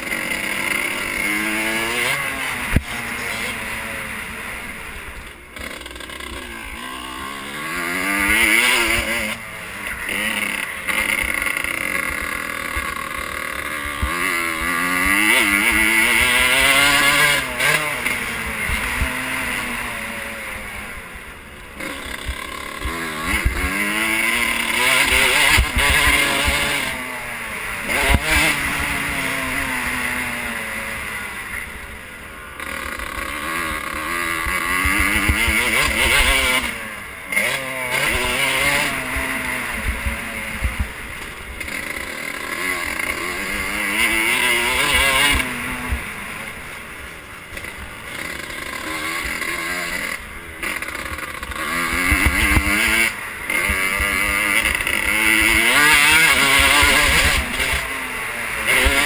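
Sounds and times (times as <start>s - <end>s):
motocross bike engine revving: 0.0s - 59.0s
sharp thumps from bumps: 50.7s - 57.9s.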